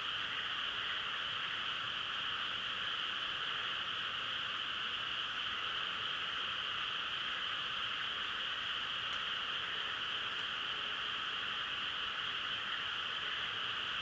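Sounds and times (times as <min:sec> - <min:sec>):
chorus of frogs trilling: 0:00.0 - 0:14.0.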